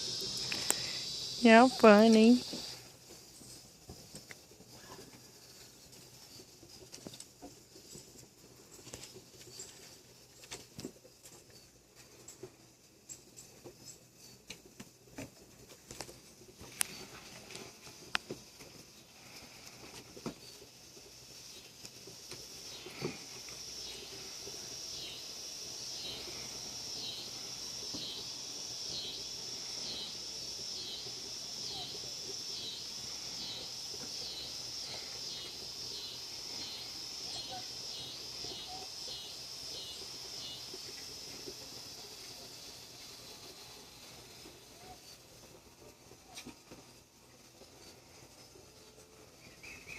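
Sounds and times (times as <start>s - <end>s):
high-pitched pulsing hiss: 0.0s - 49.9s.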